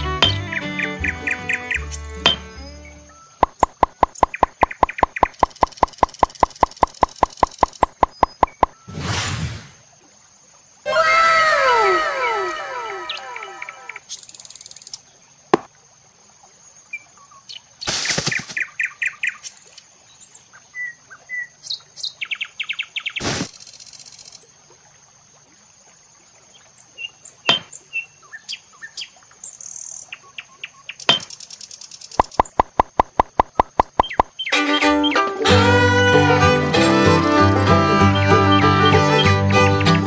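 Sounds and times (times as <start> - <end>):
faint bird chirping: 3.1 - 8.8
evenly spaced ticks: 3.4 - 8.7, 32.2 - 34.3
sharp clicks and taps: 3.4 - 8.7, 32.2 - 34.3.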